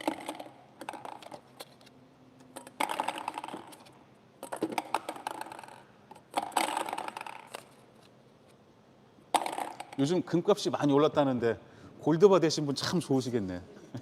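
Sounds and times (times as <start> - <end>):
ping-pong balls clattering: 0.0 - 1.8, 2.4 - 7.8, 9.3 - 10.2.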